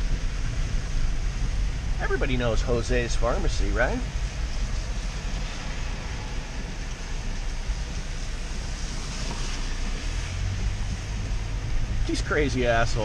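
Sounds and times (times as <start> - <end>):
rushing water wash: 0.0 - 13.0
vehicle engine and road rumble: 0.0 - 13.0.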